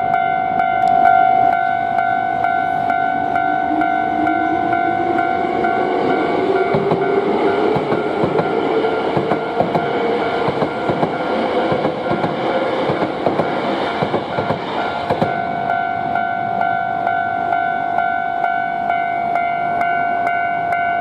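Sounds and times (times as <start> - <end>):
crossing warning bell ringing: 0.0 - 21.0
train motor whine: 0.8 - 16.1
train wheels clacking over rail joints: 5.7 - 15.4.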